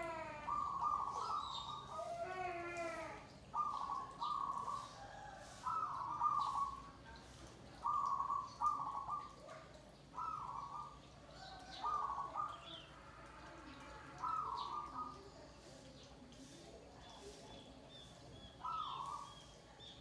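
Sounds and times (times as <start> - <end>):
doves cooing: 0.0 - 4.6, 11.7 - 15.2.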